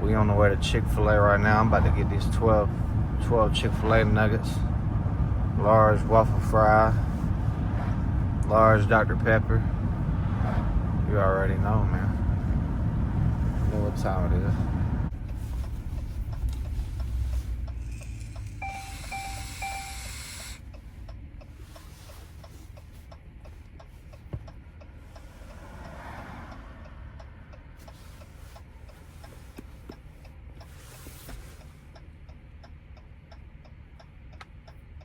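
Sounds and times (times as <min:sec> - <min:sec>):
engine and road rumble: 0:00.0 - 0:35.0
light ticking: 0:15.1 - 0:30.8, 0:31.6 - 0:35.0
beeping chime: 0:18.6 - 0:20.6.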